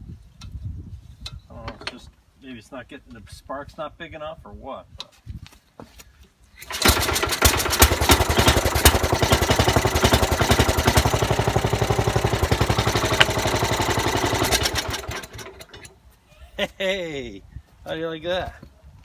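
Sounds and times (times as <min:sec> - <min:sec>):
rope pull-start: 0:06.6 - 0:16.0
single-cylinder engine running: 0:06.6 - 0:16.0.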